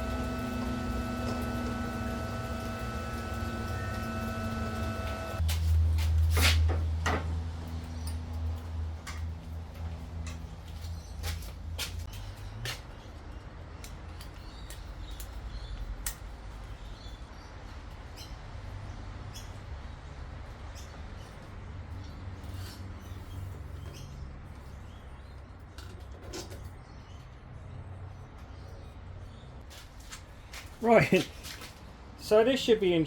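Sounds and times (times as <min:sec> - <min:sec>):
low steady hum: 0:00.0 - 0:05.4.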